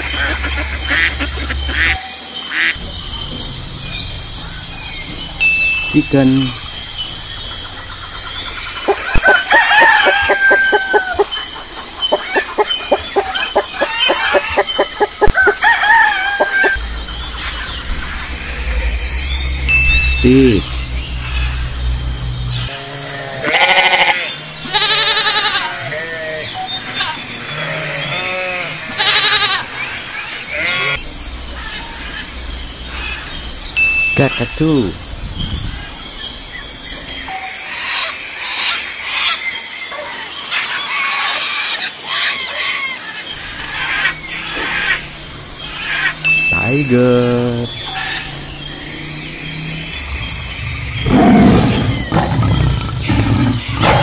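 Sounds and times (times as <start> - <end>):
chicken clucking and cackling: 0.0 - 2.7, 8.4 - 16.8
sheep bleating: 22.7 - 29.8.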